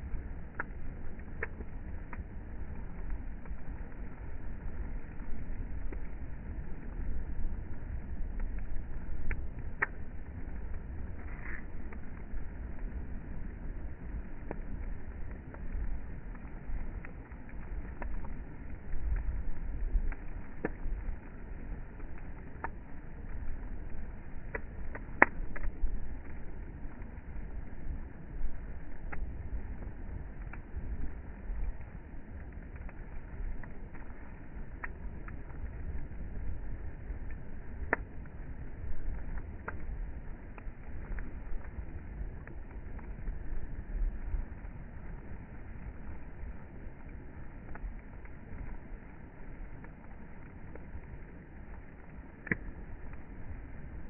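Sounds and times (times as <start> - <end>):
bonfire crackling: 0.0 - 54.0
low rumble: 0.0 - 54.0
sharp fire pops: 7.3 - 30.8, 31.5 - 43.7, 52.3 - 54.0.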